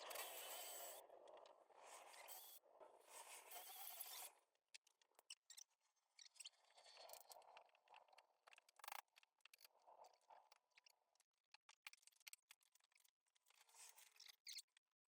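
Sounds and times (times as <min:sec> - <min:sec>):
faint irregular clicks: 0:04.7 - 0:14.8.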